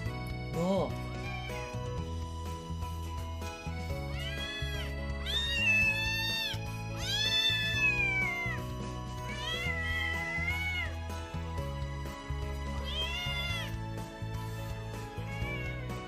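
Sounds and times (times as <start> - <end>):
background music: 0.0 - 16.0
cat meowing: 1.2 - 1.9, 4.0 - 11.0, 12.8 - 13.8, 15.1 - 16.0.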